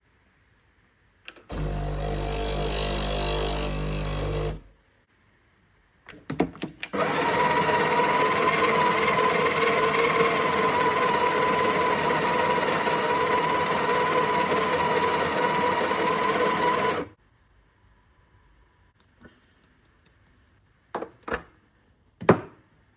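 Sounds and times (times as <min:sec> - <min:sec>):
coffee grinder whining: 0:01.3 - 0:04.6, 0:06.9 - 0:17.1
espresso machine pump humming: 0:01.4 - 0:04.6, 0:07.0 - 0:17.1.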